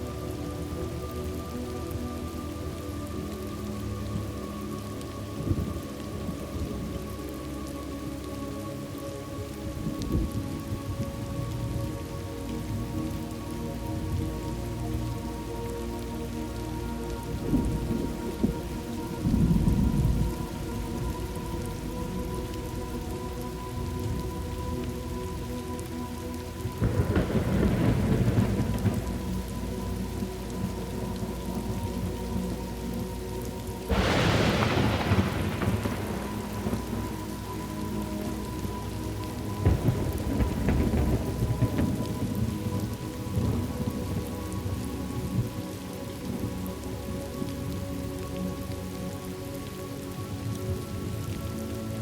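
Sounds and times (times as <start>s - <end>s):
steady rain falling: 0.0s - 52.0s
thunder rumbling: 17.1s - 25.7s, 26.4s - 46.6s.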